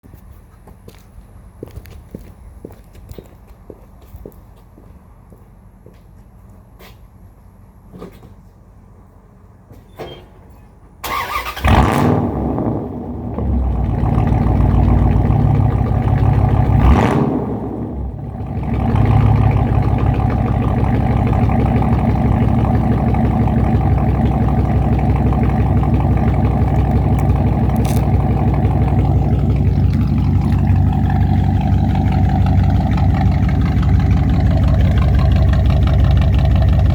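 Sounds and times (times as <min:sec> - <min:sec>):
engine starting and idling: 0:11.0 - 0:36.9.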